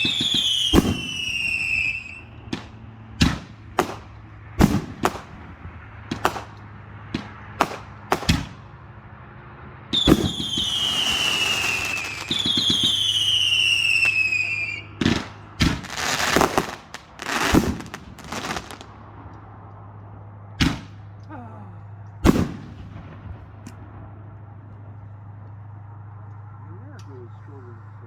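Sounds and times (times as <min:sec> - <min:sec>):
firework whistle: 0:00.0 - 0:04.0, 0:09.9 - 0:18.8
sharp firework reports: 0:00.0 - 0:06.6, 0:07.2 - 0:08.7, 0:09.9 - 0:18.9, 0:22.2 - 0:23.5
firework bangs and crackling: 0:00.0 - 0:08.7, 0:09.9 - 0:19.0, 0:20.6 - 0:21.0, 0:22.2 - 0:23.9
steady low hum: 0:14.8 - 0:28.0.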